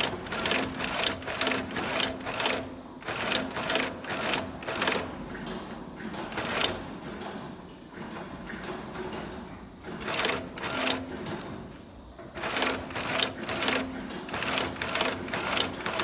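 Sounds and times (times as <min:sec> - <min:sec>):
industrial sewing machine stitching: 0:00.0 - 0:06.9, 0:09.8 - 0:11.4, 0:12.2 - 0:16.0.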